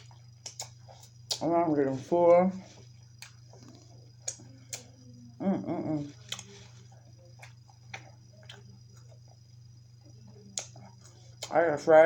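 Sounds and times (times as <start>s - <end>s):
mouth clicks while chewing: 0.0s - 1.4s, 3.1s - 5.0s, 6.2s - 6.6s, 10.5s - 11.5s
person humming: 4.7s - 6.4s.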